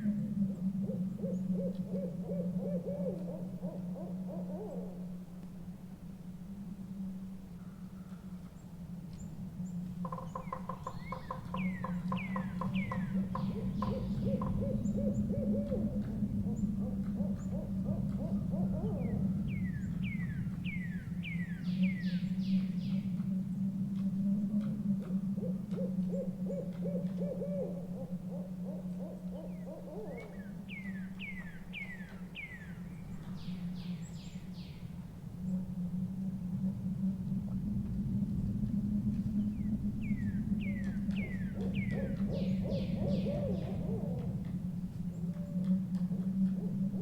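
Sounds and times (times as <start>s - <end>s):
owls hooting: 0.0s - 5.2s, 10.0s - 22.2s, 24.6s - 32.8s, 40.1s - 47.0s
steady low rumble: 32.8s - 47.0s.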